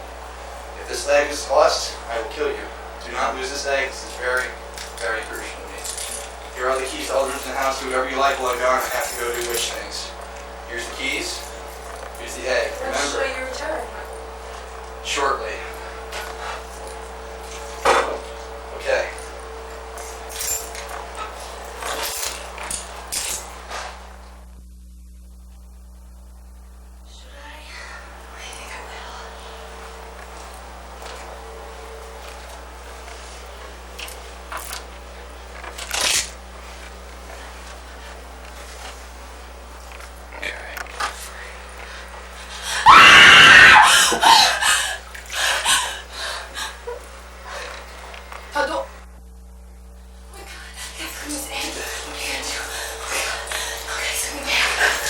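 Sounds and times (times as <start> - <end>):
low electrical hum: 0.0 - 55.0
keys jangling: 4.7 - 7.6, 8.4 - 9.9, 20.0 - 23.6
woman screaming: 42.6 - 45.0
woman crying and gasping: 42.6 - 47.1.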